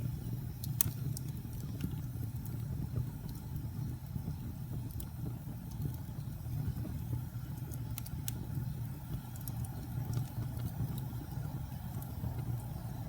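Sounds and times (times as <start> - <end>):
flames rumbling: 0.0 - 13.0
logs crackling and popping: 0.0 - 13.0.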